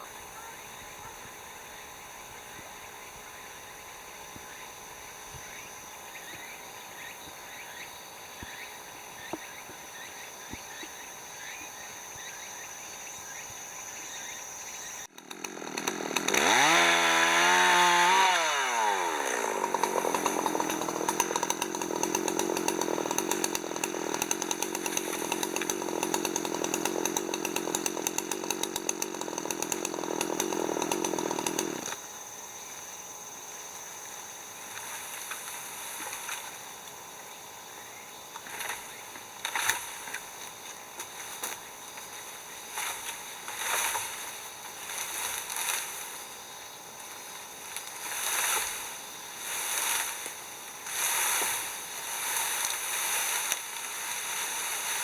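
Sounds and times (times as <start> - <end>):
chainsaw cutting wood: 14.8 - 32.4, 34.0 - 37.6, 38.2 - 55.0.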